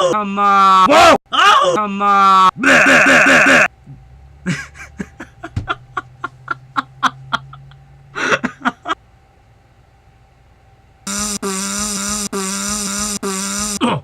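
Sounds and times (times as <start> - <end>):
loud steady pitched buzz: 11.0 - 14.0
person making silly vocal noises: 11.3 - 14.0.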